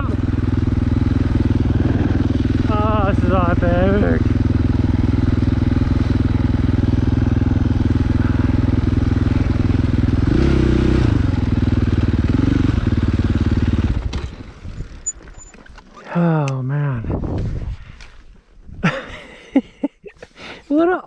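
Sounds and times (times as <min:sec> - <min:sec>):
dirt bike engine running: 0:00.0 - 0:15.6.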